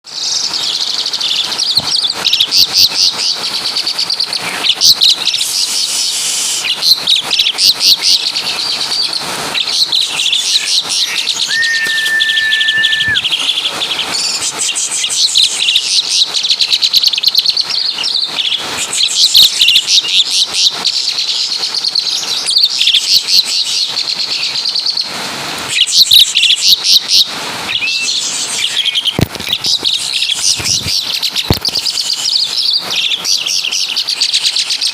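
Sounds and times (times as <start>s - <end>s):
starling singing: 0.2s - 21.2s.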